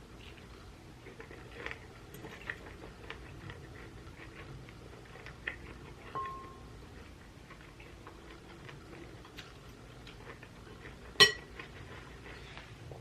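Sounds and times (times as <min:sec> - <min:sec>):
utensil clinking on dish: 0:06.2 - 0:06.6, 0:11.2 - 0:11.5.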